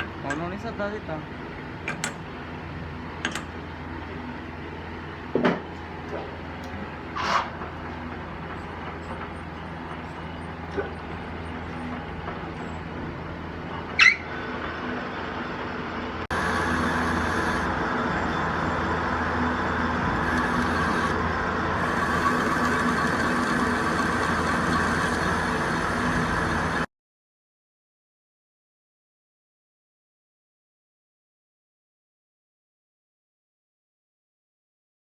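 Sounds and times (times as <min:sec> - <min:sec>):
sharp squeal: 0:14.0 - 0:14.5
high machining whine: 0:14.4 - 0:26.9
metal lathe machining: 0:16.3 - 0:26.9.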